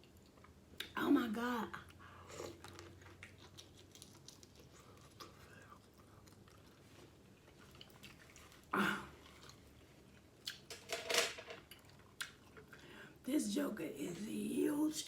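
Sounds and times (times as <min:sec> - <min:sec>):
close chewing and mouth sounds: 0:00.0 - 0:01.0, 0:01.7 - 0:10.7, 0:11.7 - 0:13.0.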